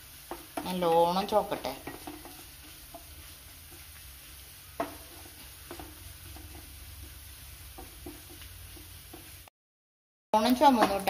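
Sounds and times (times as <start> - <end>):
spatula scraping pan: 0.0 - 9.4, 10.4 - 11.0
coconut frying with faint sizzle: 0.0 - 9.5, 10.4 - 11.0
spatula knocking against pan: 0.3 - 3.1, 4.8 - 6.7, 7.7 - 9.3.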